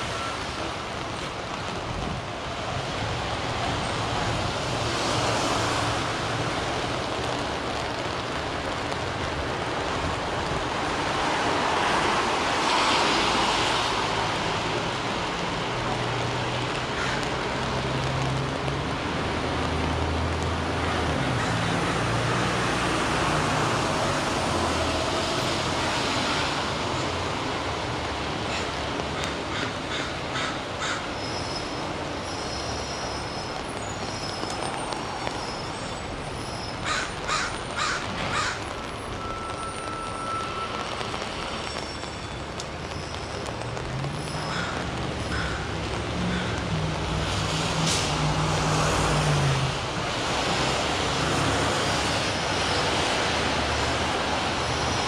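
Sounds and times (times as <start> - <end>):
city street traffic: 0.0 - 55.0
rain on umbrella: 0.0 - 55.0
heavy vehicle engine hum: 31.7 - 55.0.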